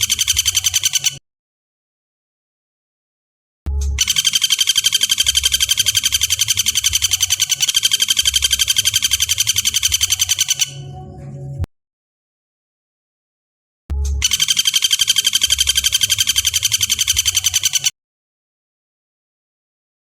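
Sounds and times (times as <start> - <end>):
woodpecker trilling rattle: 0.0 - 1.2, 4.0 - 10.9, 14.1 - 17.9.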